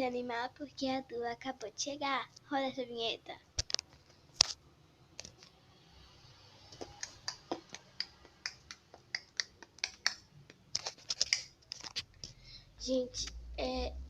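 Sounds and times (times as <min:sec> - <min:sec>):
sharp clicks and snaps: 0:03.6 - 0:04.6, 0:05.2 - 0:05.6, 0:06.8 - 0:12.4.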